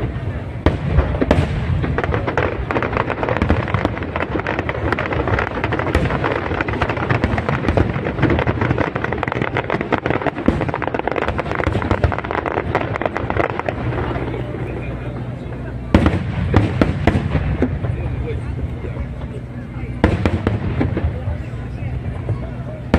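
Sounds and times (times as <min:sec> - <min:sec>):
fireworks crackling: 0:00.0 - 0:22.9.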